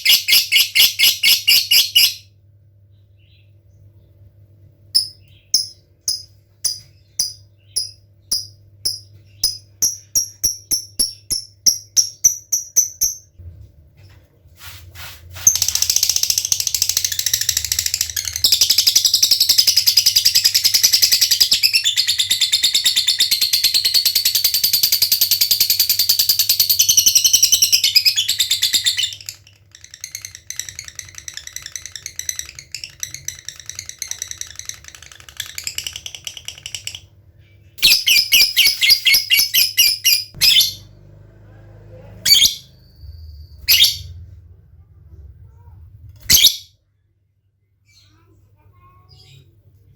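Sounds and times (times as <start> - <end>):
lovebird chattering trill: 37.8 - 40.8.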